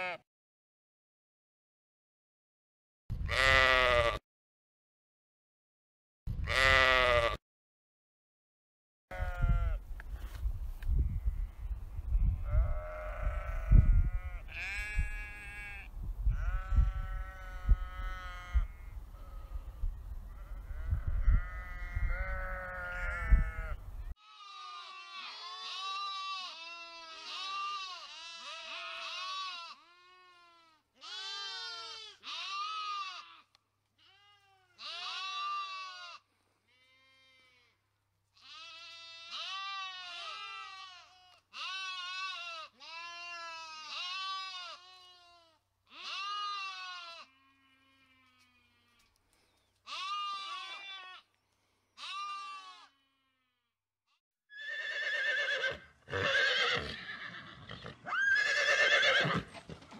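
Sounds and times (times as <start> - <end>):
sheep bleating: 0.0 - 0.2, 3.1 - 4.2, 6.4 - 7.4, 9.1 - 9.8, 12.4 - 19.6, 20.3 - 37.8, 38.4 - 49.2, 49.8 - 51.3, 52.0 - 53.6
horse whinnying: 54.5 - 59.9.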